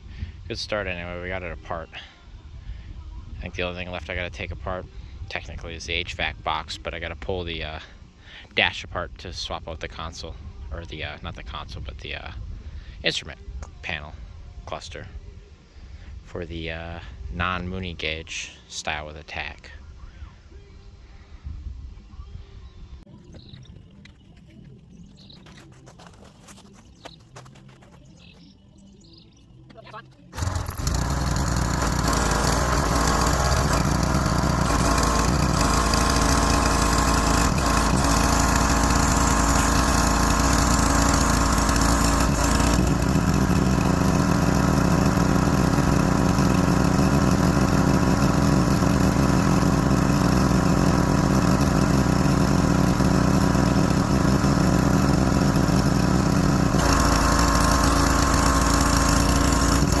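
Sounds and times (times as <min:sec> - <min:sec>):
pressure washer running: 0:30.3 - 1:00.0.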